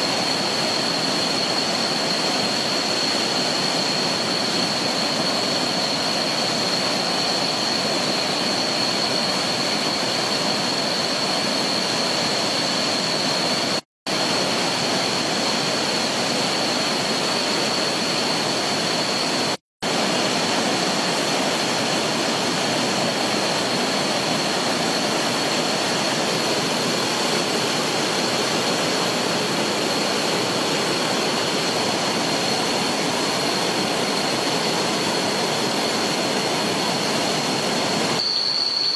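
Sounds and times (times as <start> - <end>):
thin high tone: 22.9 - 38.9.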